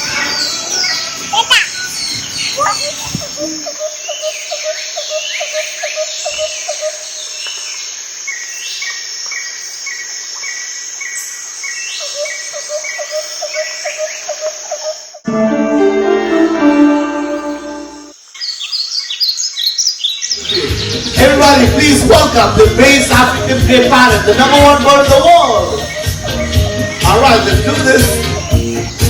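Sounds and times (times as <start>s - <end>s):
birds chirping and calling: 0.0s - 15.2s, 17.2s - 29.0s
many stacked tones: 15.3s - 18.1s.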